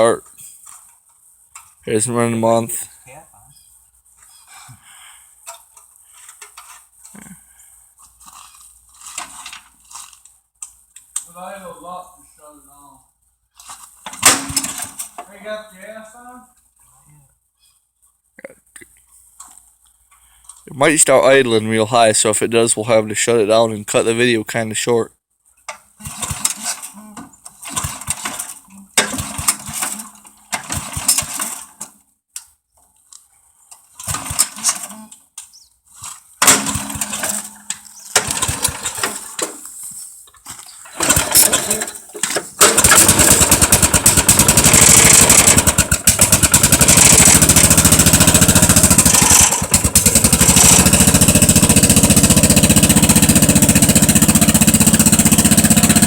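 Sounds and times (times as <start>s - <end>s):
engine cranking: 14.0s - 15.2s, 25.8s - 31.9s, 33.9s - 35.2s, 36.4s - 39.7s, 40.8s - 56.0s
tractor engine running: 27.6s - 31.8s, 36.4s - 39.8s, 40.8s - 56.0s.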